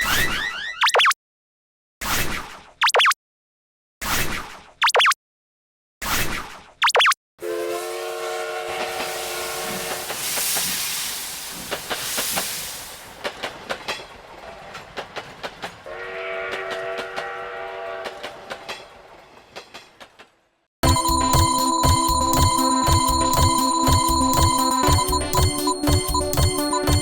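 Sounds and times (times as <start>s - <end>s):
train horn blasts: 7.4s - 10.7s, 15.9s - 18.5s
rush of passing train: 7.4s - 20.4s
clickety-clack of wheels: 13.0s - 15.9s, 18.0s - 27.0s.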